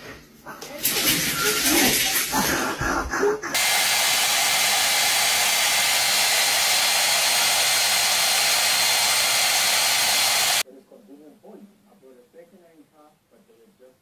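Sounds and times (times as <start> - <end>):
hair dryer running: 3.6 - 10.6.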